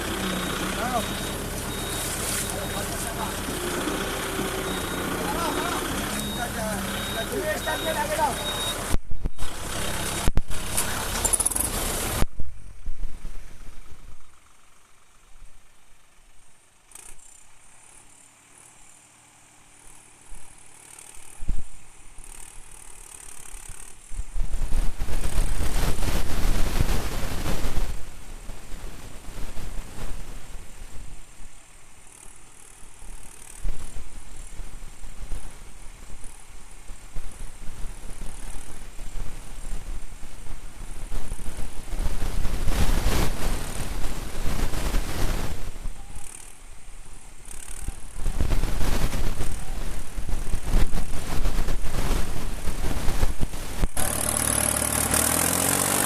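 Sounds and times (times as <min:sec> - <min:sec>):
tractor diesel engine running hard: 0:00.0 - 0:12.2, 0:52.9 - 0:56.0
faint engine sound: 0:00.0 - 0:56.0.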